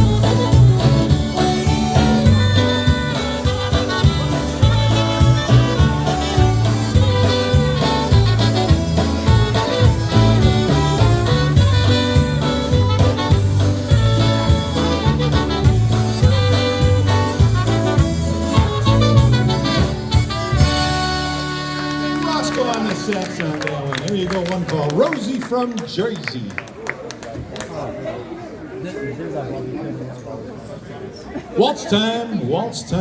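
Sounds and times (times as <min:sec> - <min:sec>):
polka band playing: 0:00.0 - 0:25.4.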